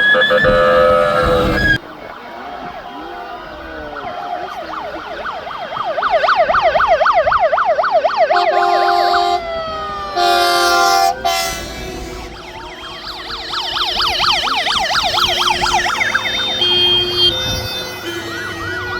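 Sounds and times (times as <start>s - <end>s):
air horn blasts: 0.0s - 1.8s, 8.4s - 18.9s
fire engine siren yelping: 0.0s - 18.9s
siren wail: 0.0s - 18.9s.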